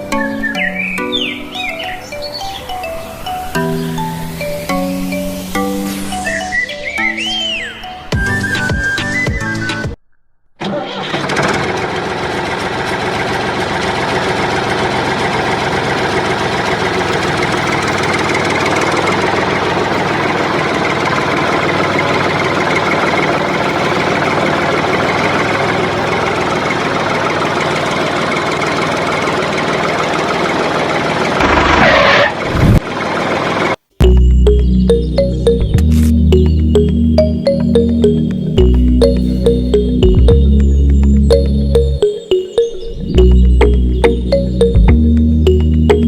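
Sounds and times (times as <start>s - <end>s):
tractor engine running: 10.8s - 46.0s.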